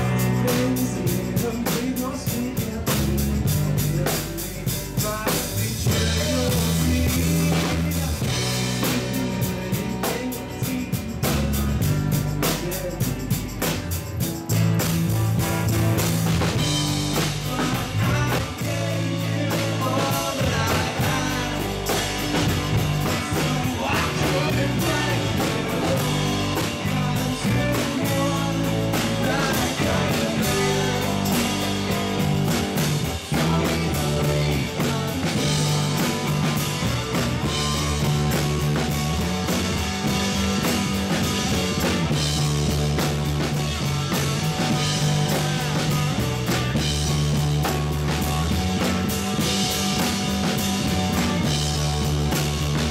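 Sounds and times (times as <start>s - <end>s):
person singing: 0.0s - 11.7s, 17.2s - 36.5s
drums: 0.0s - 52.9s
electric guitars: 0.0s - 52.9s.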